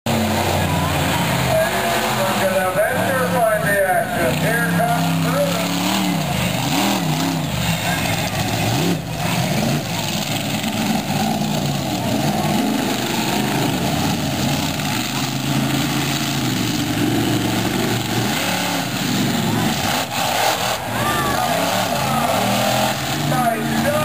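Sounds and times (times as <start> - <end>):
monster truck engine revving: 0.1 - 24.0.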